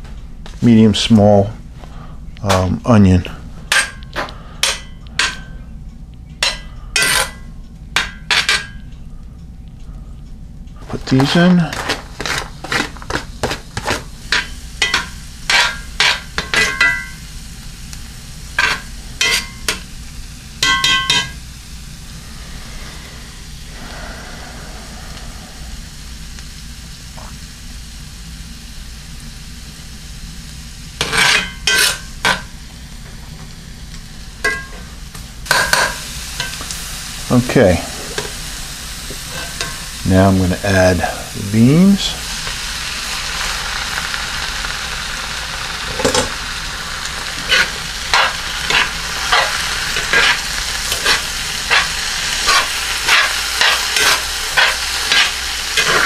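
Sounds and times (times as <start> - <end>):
garlic and onion sizzling in butter: 10.8 - 24.1, 24.8 - 56.0
metal spoon scraping a pan: 11.2 - 17.1, 18.6 - 19.8, 31.0 - 32.5, 39.2 - 40.0, 47.4 - 56.0.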